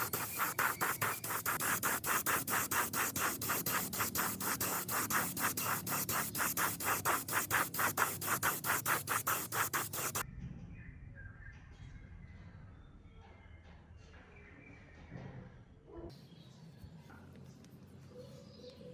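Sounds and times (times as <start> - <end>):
hand sanding strokes: 0.0 - 10.2.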